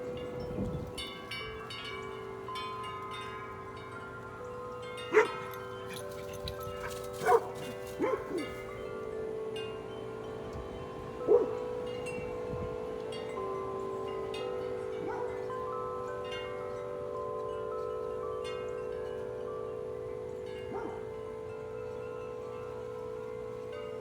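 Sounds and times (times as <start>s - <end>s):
strong wind: 0.0s - 1.8s, 10.3s - 13.0s
large wind chimes ringing: 0.0s - 24.0s.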